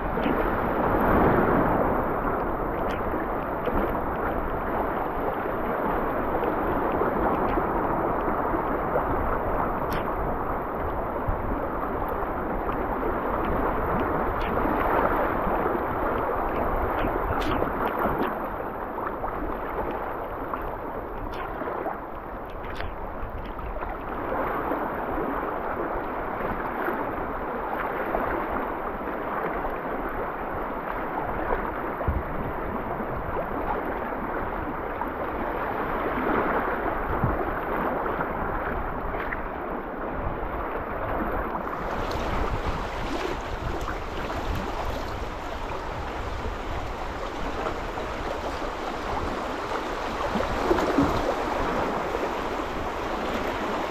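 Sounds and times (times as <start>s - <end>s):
river water rushing: 41.5s - 53.9s.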